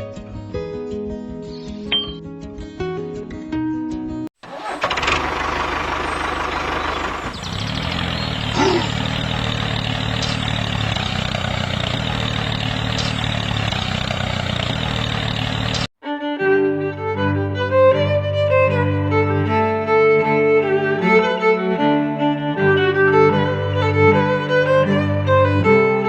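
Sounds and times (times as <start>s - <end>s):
engine running: 4.4s - 15.9s.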